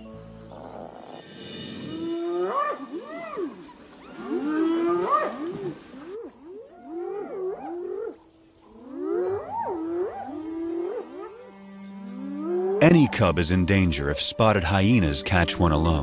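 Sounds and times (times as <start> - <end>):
wild animals yelping: 0.5 - 11.4.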